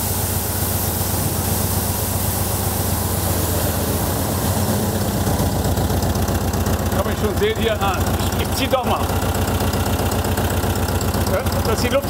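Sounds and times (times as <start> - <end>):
constant hiss: 0.0 - 9.1
car engine idling: 0.0 - 12.0.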